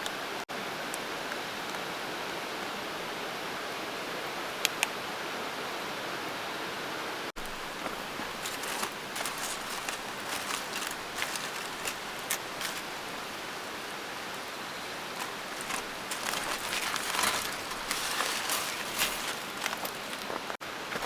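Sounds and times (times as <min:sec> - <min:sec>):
rain falling: 0:07.3 - 0:21.0.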